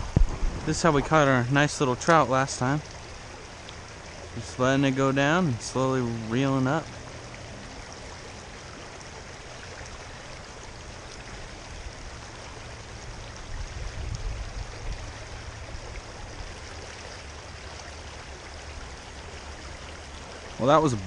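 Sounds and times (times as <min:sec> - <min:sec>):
low rumble: 0:00.0 - 0:03.3
creek water running: 0:00.0 - 0:21.0.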